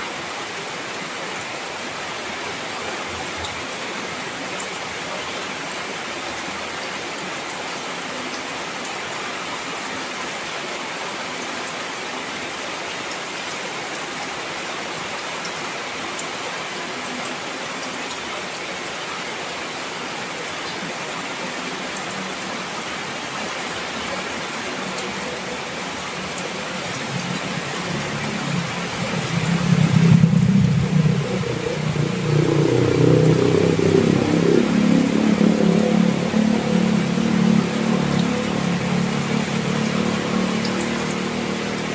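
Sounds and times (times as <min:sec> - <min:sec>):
heavy rain: 0:00.0 - 0:41.9
low rumble: 0:28.0 - 0:37.2.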